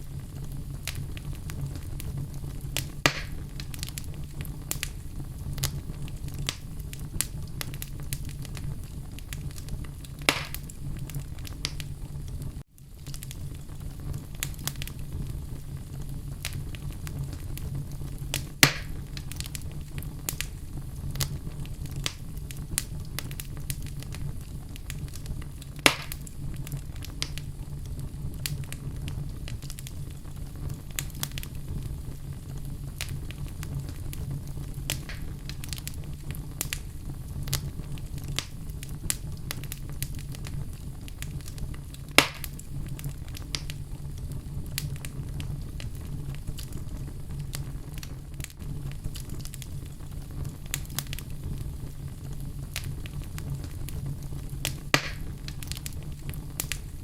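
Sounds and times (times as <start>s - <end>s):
fire crackles: 0.0s - 57.0s
fire flames rumbling: 0.0s - 57.0s
loud sharp pops: 2.8s - 3.7s, 10.2s - 10.7s, 18.6s - 19.0s, 25.8s - 26.3s, 34.9s - 35.4s, 42.1s - 42.6s, 54.7s - 55.8s.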